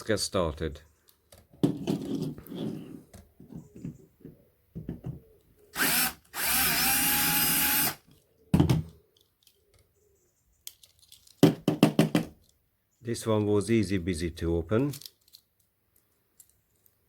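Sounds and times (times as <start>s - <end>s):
small electric drill drilling: 5.7s - 8.0s
handling knocks and clicks: 10.6s - 12.6s.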